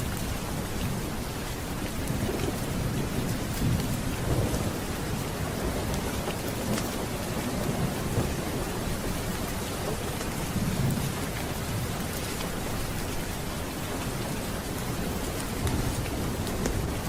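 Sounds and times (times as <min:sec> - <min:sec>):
steady rain: 0:00.0 - 0:17.0
low rolling thunder: 0:01.9 - 0:12.2.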